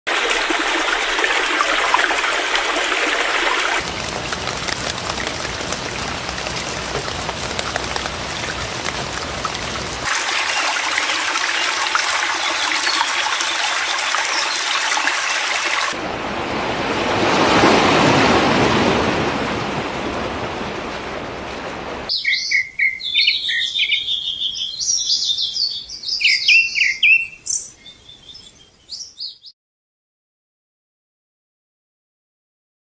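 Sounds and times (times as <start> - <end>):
rushing water: 0.1 - 22.1
small birds chirping: 22.1 - 29.5.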